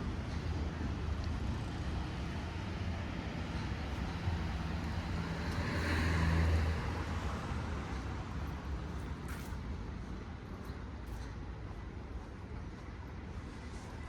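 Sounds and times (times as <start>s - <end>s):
vehicle passing: 4.0s - 7.2s.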